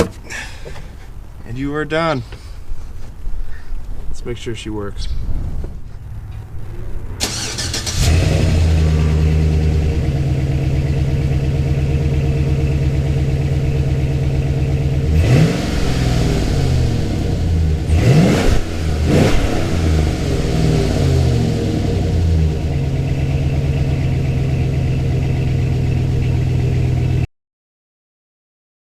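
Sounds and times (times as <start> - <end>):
car engine idling: 0.0 - 27.3
car engine cranking and starting: 5.2 - 27.3
engine revving: 5.6 - 27.3.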